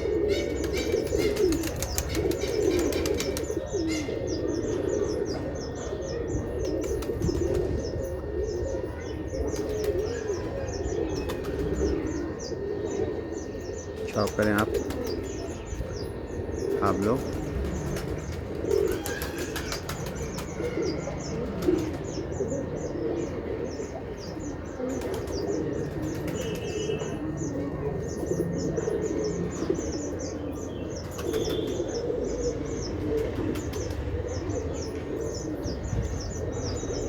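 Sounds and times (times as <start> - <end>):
pigeons cooing: 0.0 - 37.0
wings flapping: 0.5 - 3.6, 17.2 - 20.5.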